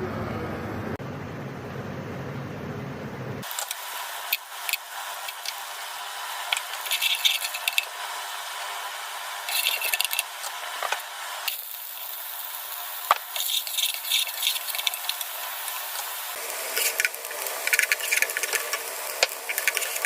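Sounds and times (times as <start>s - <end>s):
kitchen utensils clinking and scraping: 6.5s - 7.9s, 9.5s - 11.0s, 13.1s - 15.4s, 16.7s - 18.8s, 19.5s - 20.0s.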